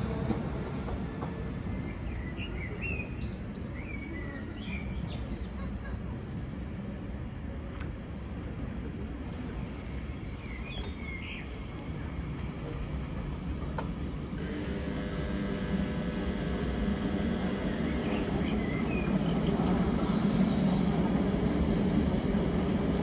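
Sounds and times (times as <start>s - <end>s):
train wheels rumbling on rail: 0.0s - 14.5s, 18.0s - 23.0s
electric traction whine: 14.4s - 19.2s.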